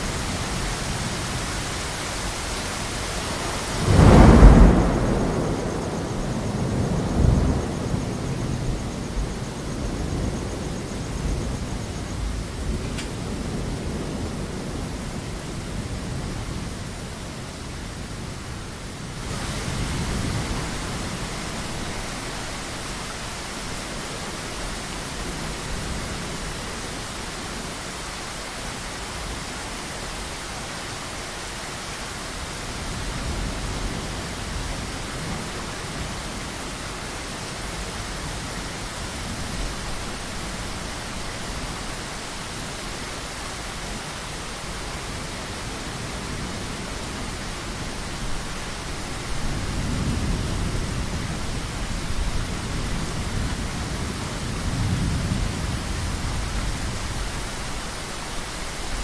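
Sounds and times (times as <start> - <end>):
distant thunder rumbles: 0.0 - 27.8
heavy rainfall: 0.0 - 59.0.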